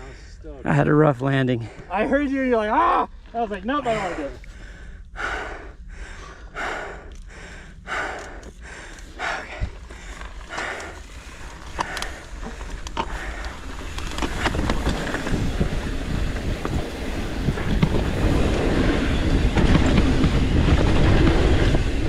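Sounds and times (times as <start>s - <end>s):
tyres on dirt trail: 0.0s - 22.0s
person breathing hard: 3.9s - 13.7s
bike clicks and rattles: 7.1s - 22.0s.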